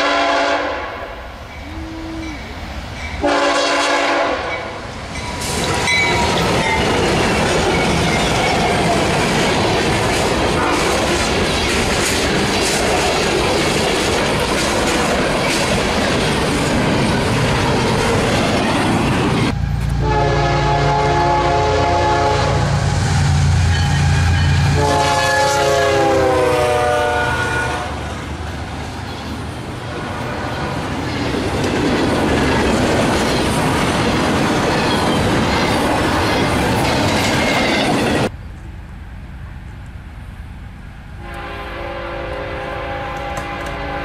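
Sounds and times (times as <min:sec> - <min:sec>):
locomotive horn blasts: 0:00.0 - 0:02.5, 0:03.2 - 0:04.7, 0:10.6 - 0:10.9, 0:19.9 - 0:22.9, 0:23.8 - 0:28.1, 0:41.2 - 0:44.0
freight train rumble and clatter: 0:00.0 - 0:44.0.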